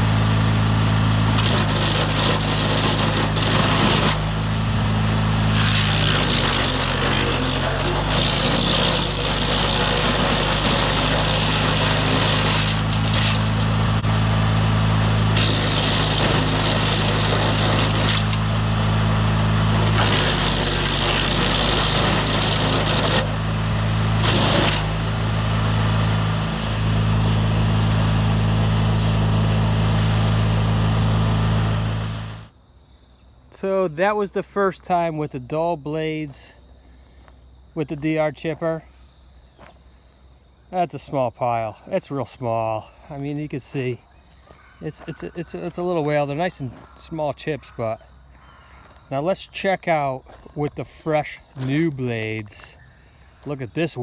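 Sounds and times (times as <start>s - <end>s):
branches being chipped: 0.0s - 25.9s, 43.3s - 49.3s
wood chipper engine running: 0.0s - 32.6s, 41.7s - 54.0s.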